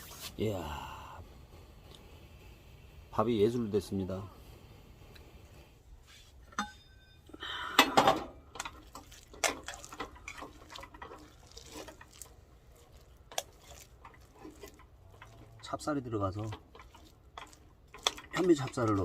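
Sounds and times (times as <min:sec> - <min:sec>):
utensil scraping metal pot: 0:07.9 - 0:19.0.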